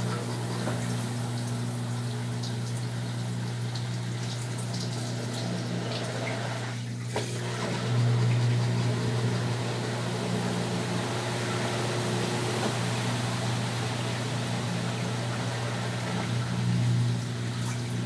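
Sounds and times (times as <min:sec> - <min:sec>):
washing machine electric hum: 0:00.0 - 0:18.0
washing machine water sloshing: 0:00.0 - 0:18.0.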